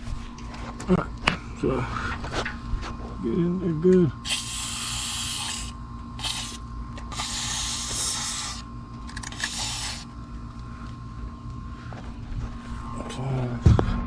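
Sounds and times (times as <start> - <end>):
aerosol spray hissing: 4.2 - 8.7, 9.3 - 10.1.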